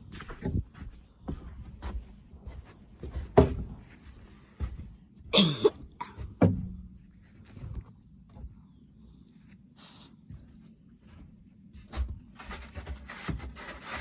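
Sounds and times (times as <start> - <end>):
person coughing: 5.3 - 6.2.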